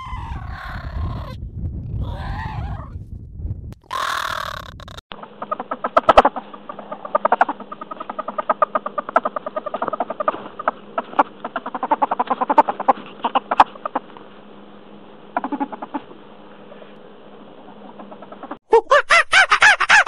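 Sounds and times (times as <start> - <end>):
meerkats chirping: 0.0 - 1.3, 3.9 - 14.1, 15.3 - 16.1.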